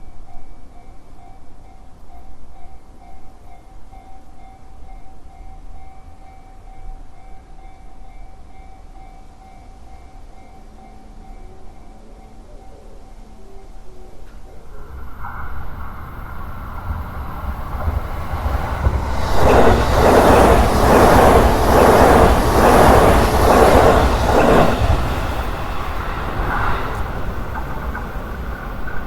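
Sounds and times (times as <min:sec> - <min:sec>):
electric locomotive rumble: 0:11.3 - 0:29.0
rhythmic wheel clatter: 0:14.9 - 0:29.0.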